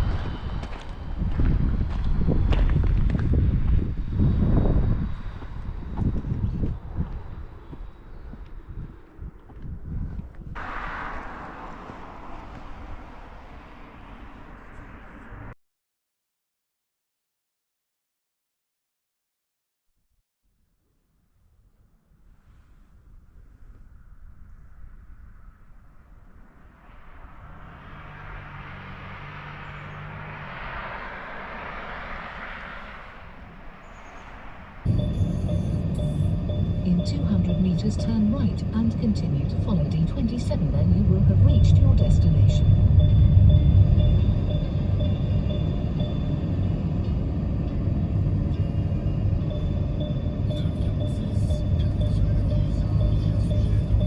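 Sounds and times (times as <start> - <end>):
tyre and air noise: 0.0 - 15.5
low engine hum: 0.0 - 15.6, 22.7 - 54.0.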